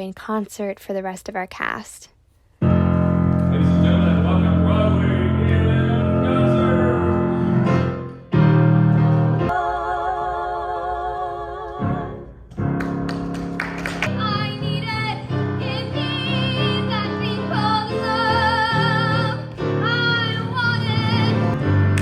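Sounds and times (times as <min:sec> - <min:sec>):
instrumental accompaniment: 0:02.6 - 0:09.5
woman singing with vibrato: 0:14.1 - 0:21.6.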